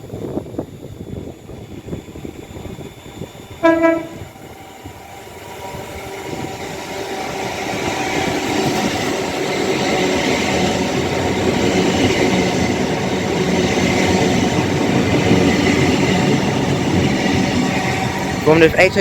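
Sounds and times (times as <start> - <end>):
train running on rails: 0.0 - 19.0
train horn blast: 3.6 - 4.4.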